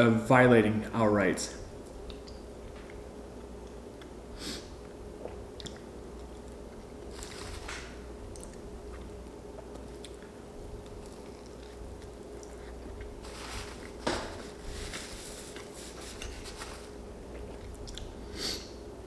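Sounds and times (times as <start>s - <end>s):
faint steady hum: 0.0s - 19.0s
food being chewed: 5.2s - 14.0s, 15.5s - 18.2s.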